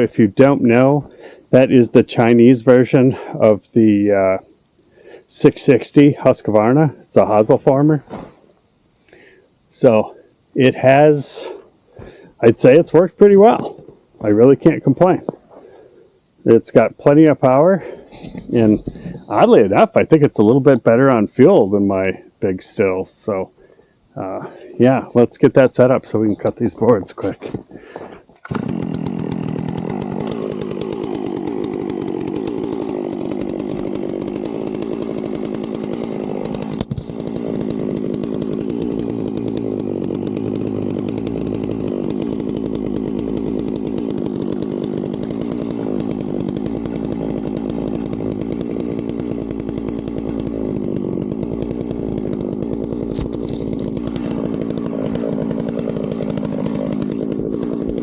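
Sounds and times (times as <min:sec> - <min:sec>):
chainsaw running: 0:00.3 - 0:03.4, 0:28.0 - 0:58.0.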